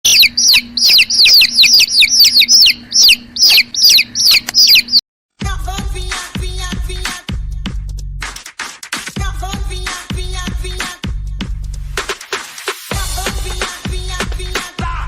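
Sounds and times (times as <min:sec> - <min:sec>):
small bird chirping rapidly: 0:00.0 - 0:05.0
pop music with heavy bass: 0:05.4 - 0:15.0.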